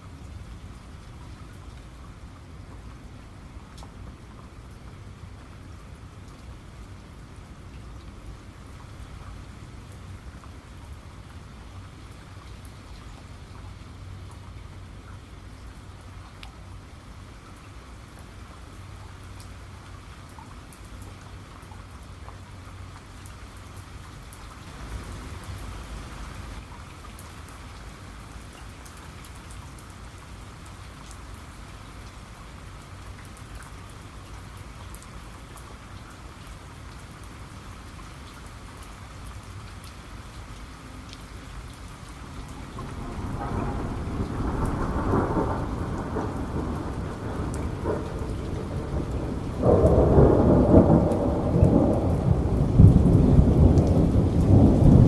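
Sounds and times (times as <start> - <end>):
steady rain: 0.0 - 55.0
rolling thunder rumble: 42.3 - 55.0.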